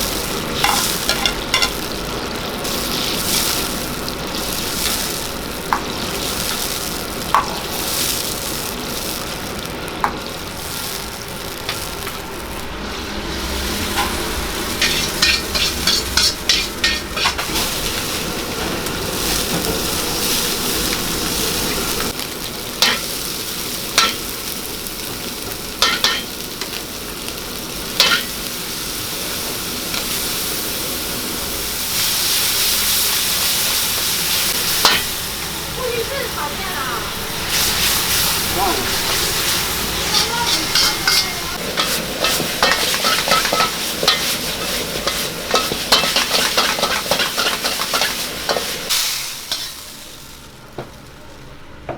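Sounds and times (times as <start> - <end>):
food sizzling in a wok: 0.0 - 51.9
metal ladle scraping a pan: 13.7 - 17.8, 40.0 - 48.9.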